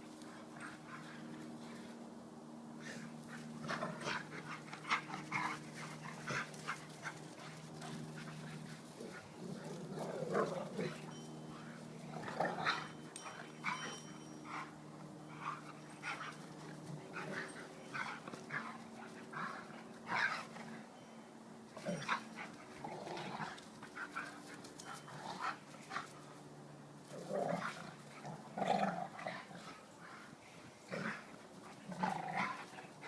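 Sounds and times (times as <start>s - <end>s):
dogs growling: 2.8s - 20.8s, 21.8s - 26.1s, 27.0s - 33.0s
dogs scuffling: 2.8s - 20.9s.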